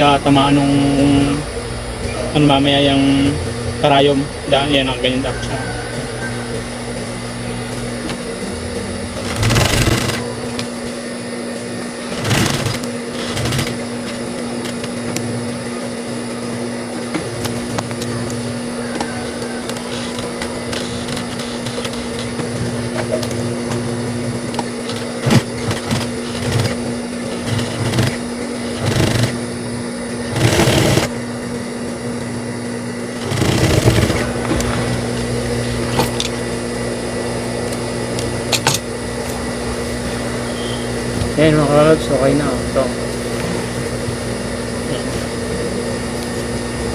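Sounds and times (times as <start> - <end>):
sewing machine motor hum: 0.0 - 46.9
sewing machine stitching bursts: 9.2 - 10.3, 12.0 - 13.8, 25.2 - 29.4, 30.3 - 31.1, 33.2 - 34.3.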